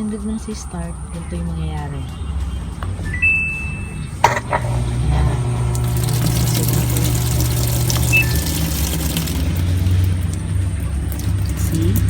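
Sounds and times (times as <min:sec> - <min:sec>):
washing machine low hum: 0:03.0 - 0:12.0
water running into tub: 0:04.2 - 0:12.0.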